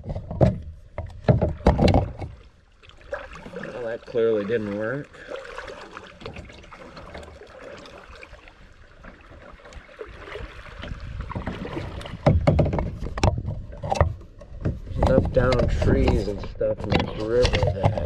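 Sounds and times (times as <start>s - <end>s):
soft water lapping: 0.0s - 18.0s
loud knocks and bumps: 12.2s - 13.6s.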